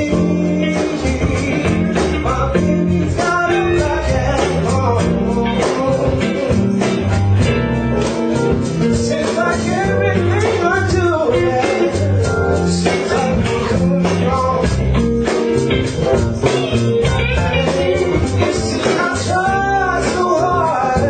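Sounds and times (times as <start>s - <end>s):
blues band playing: 0.0s - 21.0s
guitar: 0.0s - 21.0s.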